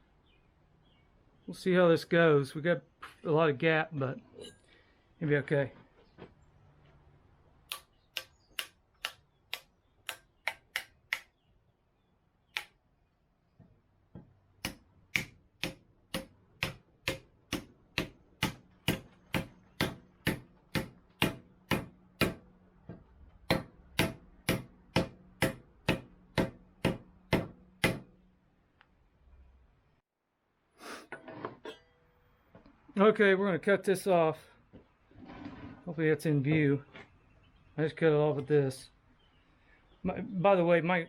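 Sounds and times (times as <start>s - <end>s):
hammer striking axe head: 14.2s - 22.4s, 23.5s - 28.1s.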